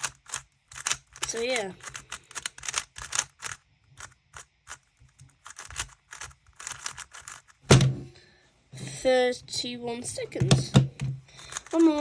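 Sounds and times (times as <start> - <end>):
puzzle cube plastic clicks: 0.0 - 7.6, 10.4 - 12.0.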